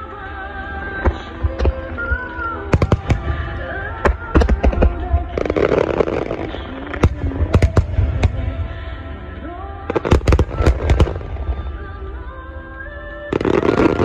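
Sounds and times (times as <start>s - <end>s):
music: 0.0s - 14.0s
fireworks cracking: 1.0s - 8.8s, 9.9s - 12.2s, 13.3s - 14.0s.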